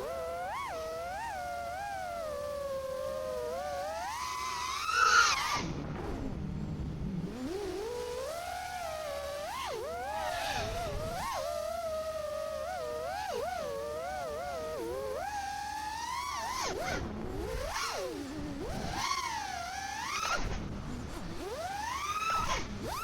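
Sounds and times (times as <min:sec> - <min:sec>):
quadcopter motors whining: 0:00.0 - 0:23.0.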